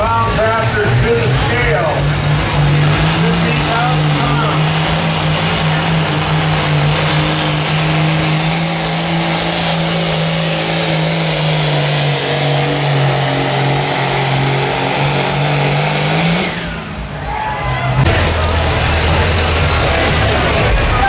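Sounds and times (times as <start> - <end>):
tractor engine at high throttle: 0.0 - 21.0.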